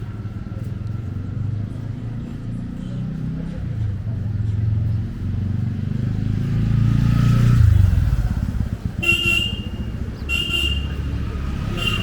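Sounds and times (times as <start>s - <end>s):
motorcycle engine passing: 4.8s - 12.0s.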